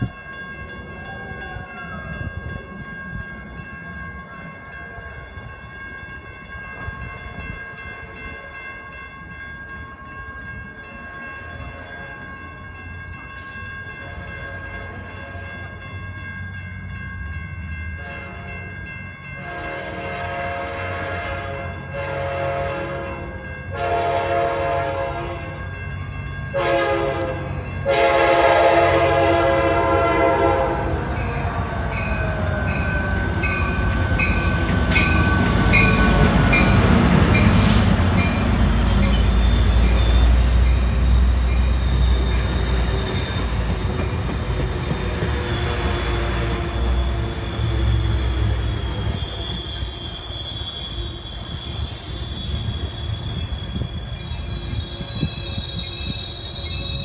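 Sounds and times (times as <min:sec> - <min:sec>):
train coaches rumbling past: 0:00.0 - 0:57.0
train horn blasts: 0:18.0 - 0:18.6, 0:19.4 - 0:25.6, 0:26.5 - 0:31.2, 0:45.1 - 0:48.8.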